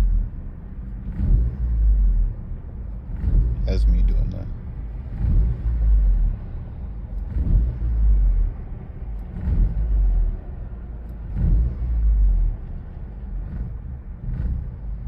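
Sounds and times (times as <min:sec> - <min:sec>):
car engine running rough: 0:00.0 - 0:15.0.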